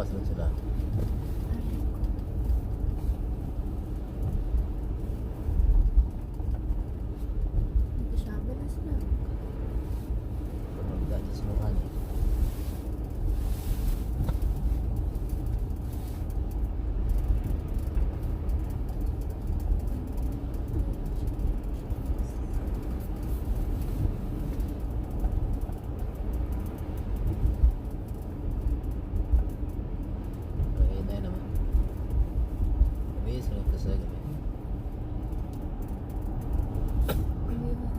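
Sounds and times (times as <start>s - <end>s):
car engine and tyre rumble: 0.0s - 37.9s.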